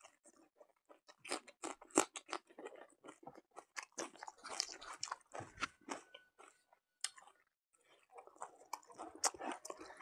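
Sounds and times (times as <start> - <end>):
close-miked wet chewing: 0.0 - 10.0.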